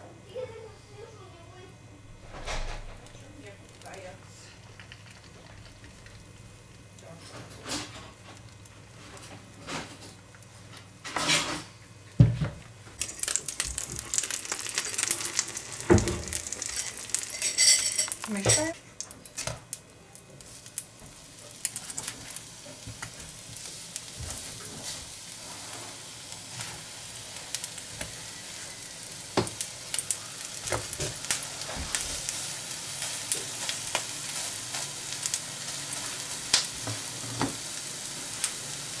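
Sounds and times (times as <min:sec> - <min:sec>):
oil popping and spattering: 0:04.6 - 0:06.7, 0:13.0 - 0:18.5
fritters sizzling in hot oil: 0:12.8 - 0:39.0
spatula turning food: 0:12.9 - 0:19.5, 0:20.1 - 0:38.9.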